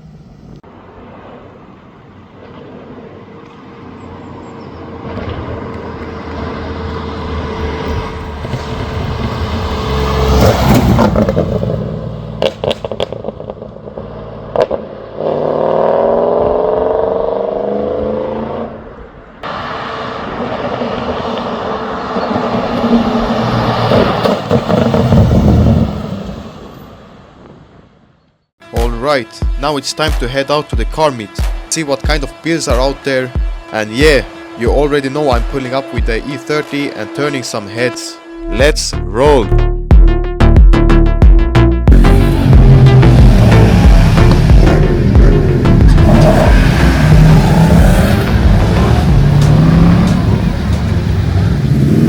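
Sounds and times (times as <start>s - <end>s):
car engine running loudly: 2.1s - 25.4s, 41.9s - 52.0s.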